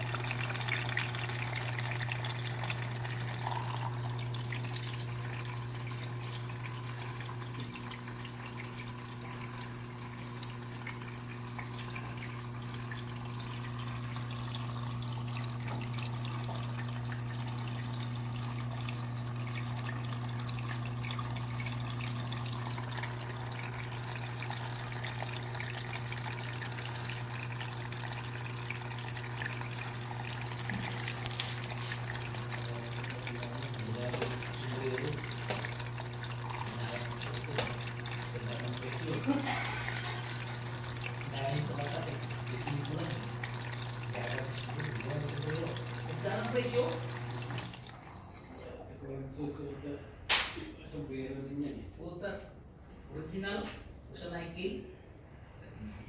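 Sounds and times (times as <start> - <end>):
water running and splashing: 0.0 - 48.8.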